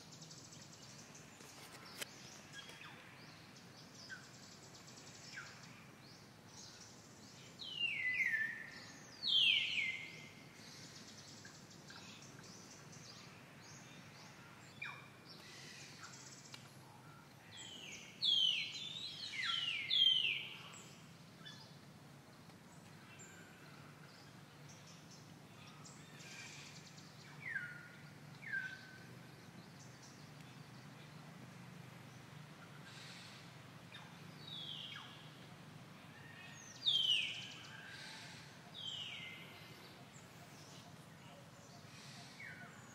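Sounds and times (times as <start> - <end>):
faint low hum: 0.0 - 42.9
birds whistling falling calls: 14.9 - 21.7.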